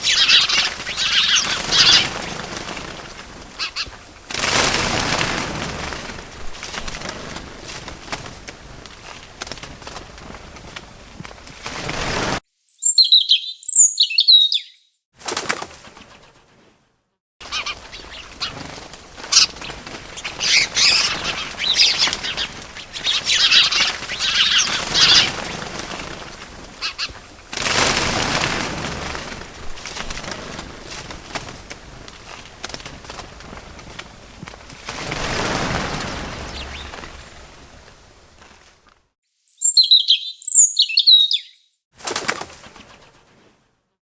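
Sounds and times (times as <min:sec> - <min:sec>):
birds chirping: 0:00.0 - 0:04.2, 0:12.5 - 0:15.0, 0:17.4 - 0:27.3, 0:34.9 - 0:38.4, 0:39.3 - 0:41.8
wings flapping: 0:00.0 - 0:12.4, 0:15.2 - 0:39.1, 0:42.0 - 0:43.7.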